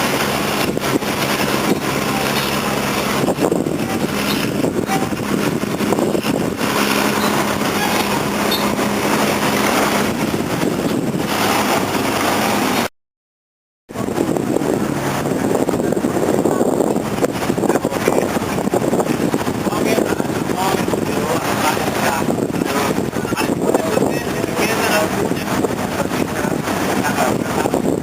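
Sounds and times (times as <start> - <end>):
engine low hum: 0.0 - 12.9
loud rushing noise: 0.0 - 12.9, 13.9 - 28.0.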